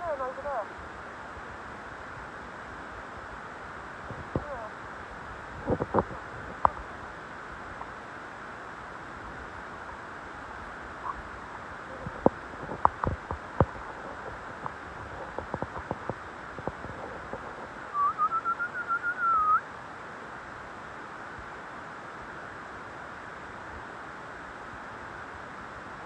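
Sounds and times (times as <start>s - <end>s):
outdoor hiss: 0.0s - 26.0s
sharp clicks and knocks: 12.0s - 17.6s
warbling trilled whistle: 17.9s - 19.6s.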